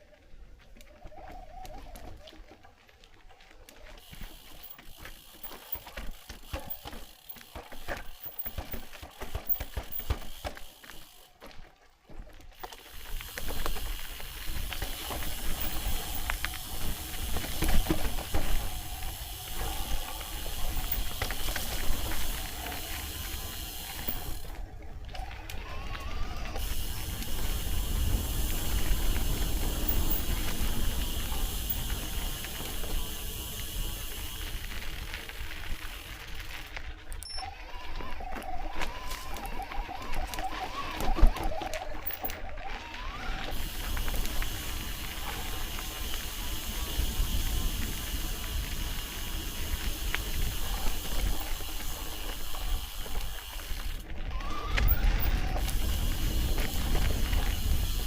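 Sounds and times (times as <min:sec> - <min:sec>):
steady rumbling hiss: 0:55.6 - 0:58.0.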